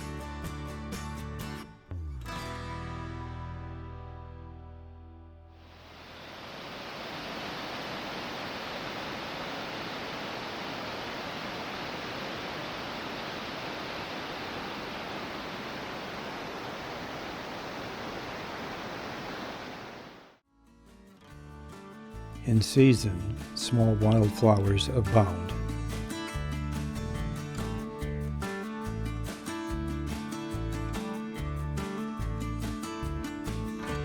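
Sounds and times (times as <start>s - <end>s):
waterfall rushing: 5.7s - 20.3s.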